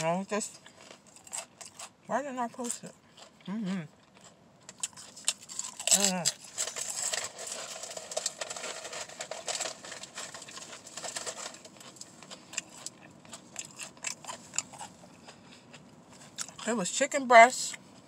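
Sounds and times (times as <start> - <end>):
person chewing with mouth clicks: 3.1 - 8.0, 10.5 - 16.7.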